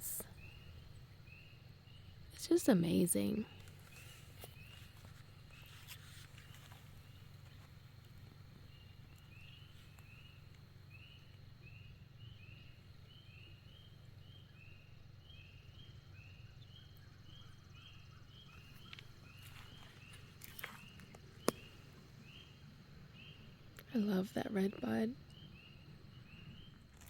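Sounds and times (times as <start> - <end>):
distant bird chirping: 0.0 - 27.0
low steady rumble: 0.0 - 27.0.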